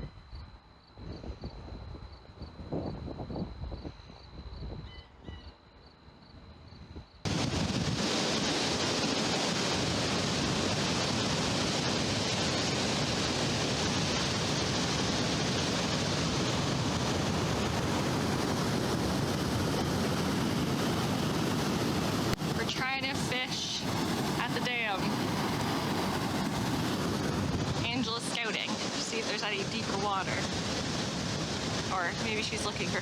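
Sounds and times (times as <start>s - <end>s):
water rushing over a dam: 7.3s - 33.0s.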